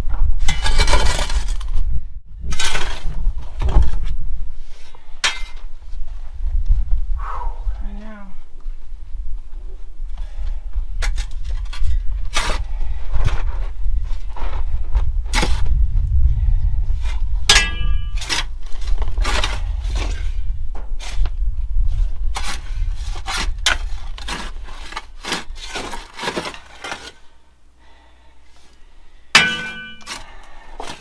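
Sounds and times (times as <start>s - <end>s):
shovels scraping into dirt: 0.5s - 1.6s, 2.5s - 4.0s, 15.3s - 15.7s, 17.0s - 20.4s, 22.4s - 27.3s, 29.4s - 31.0s
shovel blades clanging: 17.5s - 18.5s, 29.4s - 31.0s.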